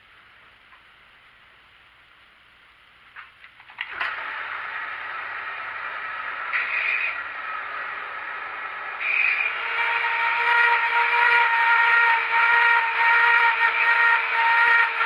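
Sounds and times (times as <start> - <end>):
grinder motor whine: 3.8 - 15.0
grinding wheel hissing on metal: 4.3 - 15.0.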